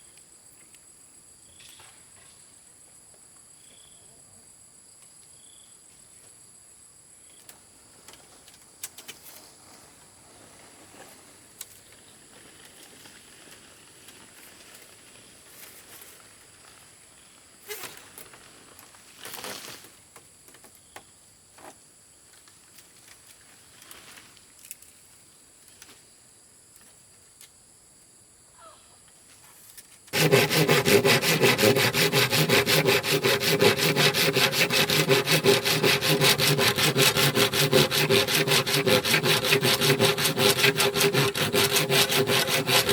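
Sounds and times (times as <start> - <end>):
fast sawing: 30.1 - 42.9.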